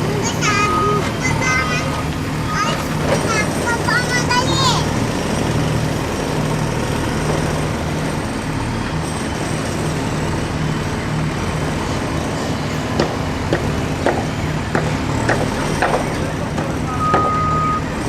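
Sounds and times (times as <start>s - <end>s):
heavy machinery diesel engine: 0.0s - 18.0s.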